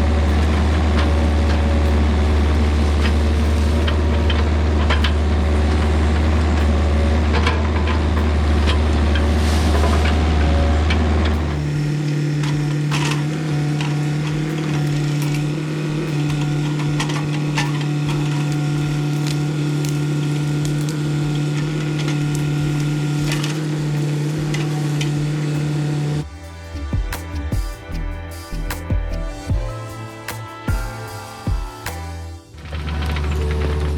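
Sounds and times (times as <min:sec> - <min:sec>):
heavy machine engine running: 0:00.0 - 0:33.9
branches cracking and snapping: 0:12.0 - 0:26.0.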